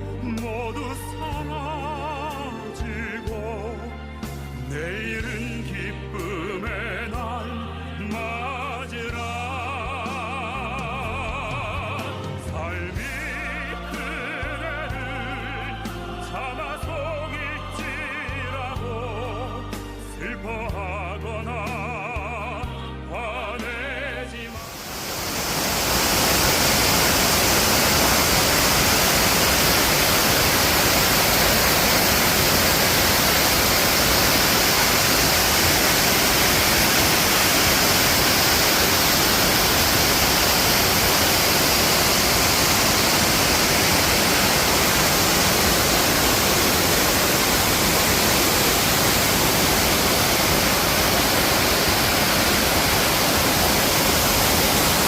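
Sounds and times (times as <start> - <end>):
stream water rushing: 24.5 - 55.0.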